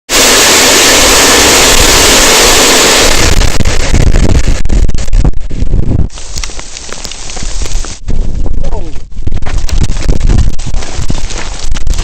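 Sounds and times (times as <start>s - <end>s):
rushing hiss on microphone: 0.1s - 8.2s
wind buffeting microphone: 0.8s - 12.0s.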